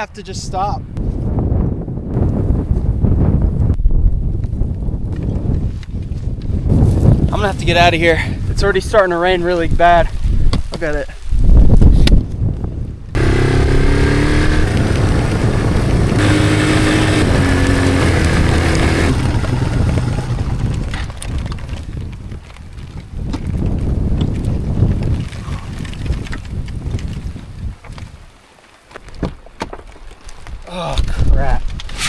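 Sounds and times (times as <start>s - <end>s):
motorcycle engine running: 13.2s - 21.8s.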